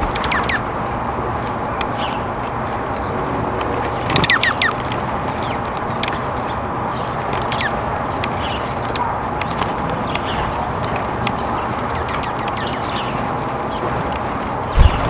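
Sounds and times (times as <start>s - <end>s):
low rushing background: 0.0s - 15.0s
small songbirds chirping: 0.0s - 15.0s.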